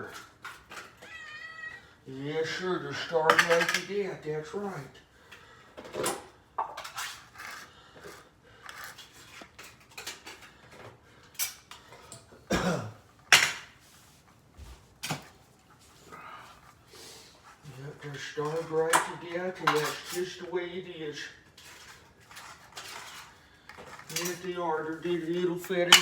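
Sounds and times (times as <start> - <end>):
dishes and utensils clinking: 3.3 - 3.9, 18.9 - 20.3, 25.6 - 26.0.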